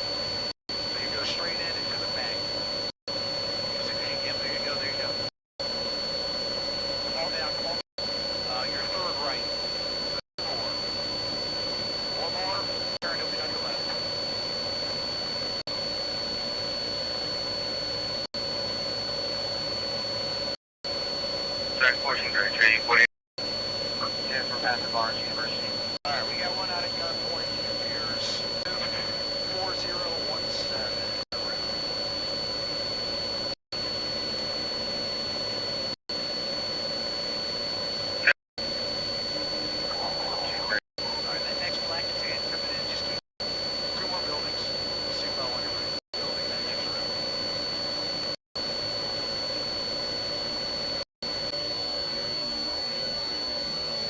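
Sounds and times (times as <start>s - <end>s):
helicopter turbine and rotor drone: 0.0s - 54.0s
thin high whine: 0.0s - 54.0s
mechanical drone with hiss: 24.0s - 32.2s.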